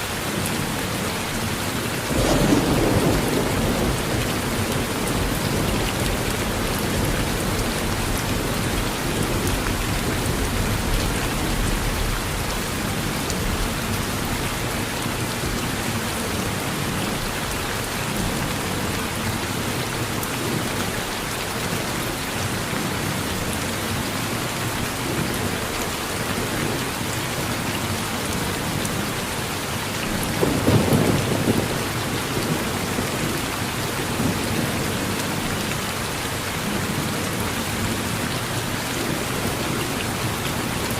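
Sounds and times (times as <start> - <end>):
rain falling on a porch: 0.0 - 40.9
thunder rumbling: 2.0 - 14.2, 30.1 - 33.2.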